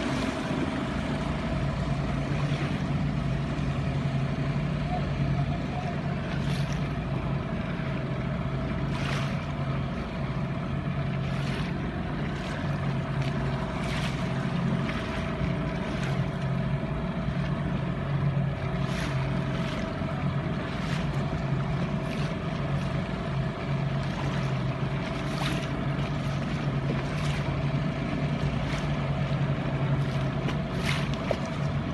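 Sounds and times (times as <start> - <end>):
engine humming: 0.0 - 31.9
sharp knocks or splashes: 6.2 - 7.0, 8.8 - 10.1, 11.2 - 16.6, 18.6 - 23.1, 23.8 - 31.9.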